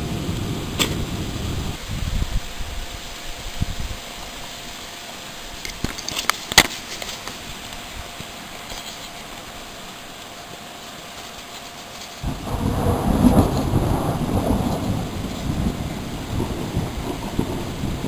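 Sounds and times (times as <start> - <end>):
deep rumble of thunder: 0.0 - 2.5, 12.2 - 18.0
steady low background noise: 0.0 - 18.0.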